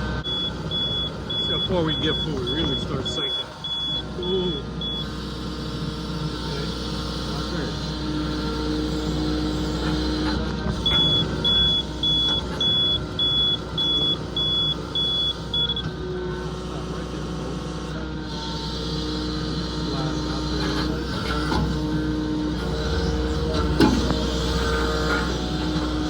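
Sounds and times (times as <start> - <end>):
diesel engine running: 0.0 - 26.0
high electronic beeper: 0.2 - 5.2, 10.8 - 15.9.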